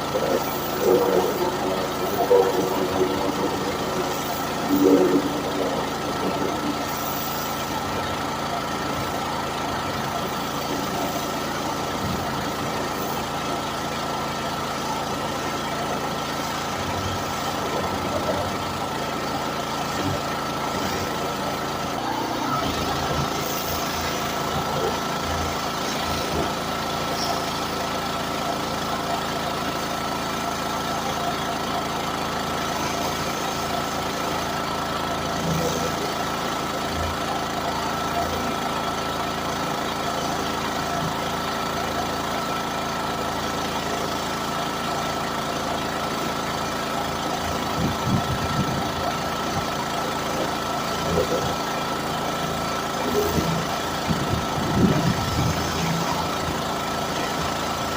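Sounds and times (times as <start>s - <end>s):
pressure washer running: 0.0s - 57.9s.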